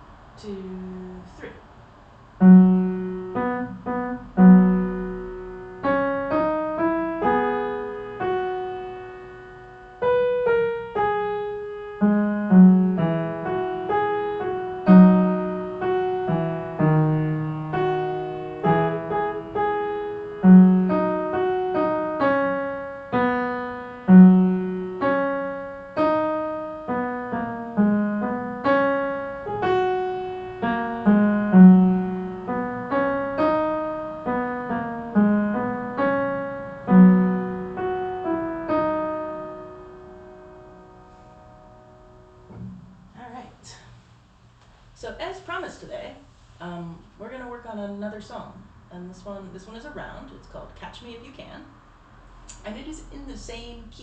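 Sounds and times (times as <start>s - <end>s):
piano playing a tune: 2.4s - 43.3s.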